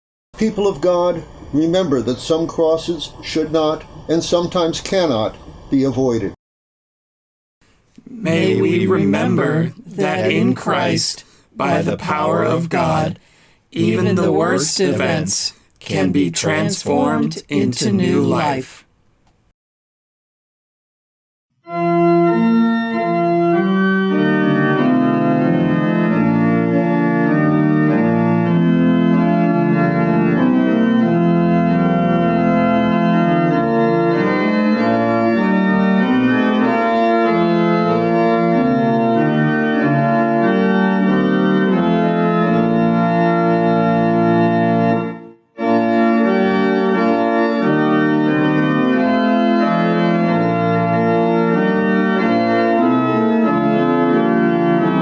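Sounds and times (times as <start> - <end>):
organ playing sustained chords: 8.1 - 13.2, 13.8 - 18.6, 21.7 - 55.0.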